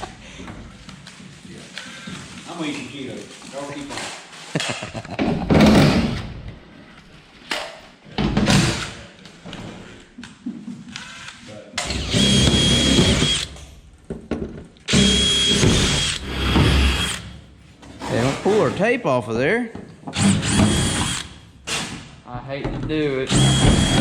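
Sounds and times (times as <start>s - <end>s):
power drill whining: 11.8s - 13.5s, 14.9s - 17.2s, 20.2s - 21.3s, 23.3s - 24.0s.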